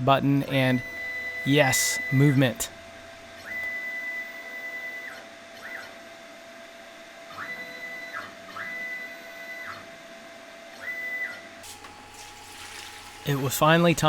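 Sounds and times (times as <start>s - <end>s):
faint steady hum: 11.6s - 14.0s.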